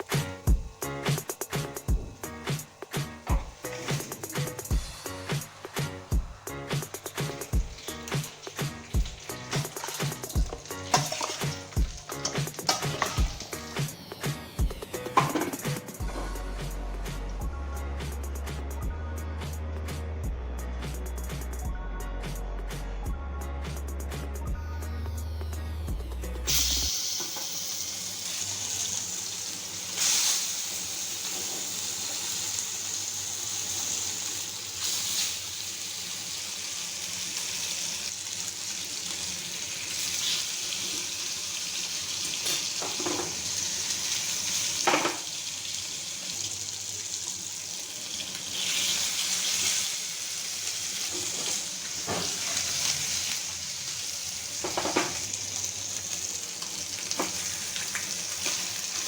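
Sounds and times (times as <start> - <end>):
food sizzling in hot oil: 0.0 - 17.4, 26.4 - 59.0
utensil scraping a pan: 7.1 - 13.5.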